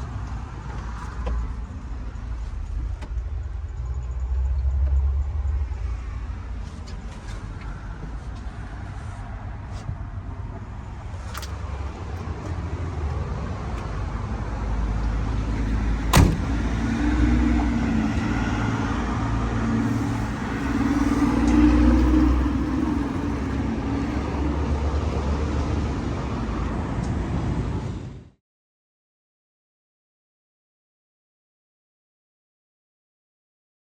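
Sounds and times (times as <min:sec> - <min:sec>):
vehicle engine rumbling: 0:00.0 - 0:28.0
sharp knock: 0:16.1 - 0:16.6.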